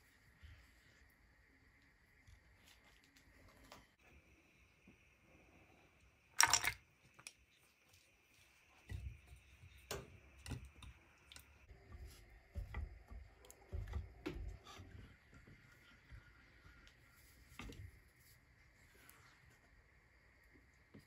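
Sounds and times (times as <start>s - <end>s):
small objects clicking and knocking: 6.3s - 7.5s.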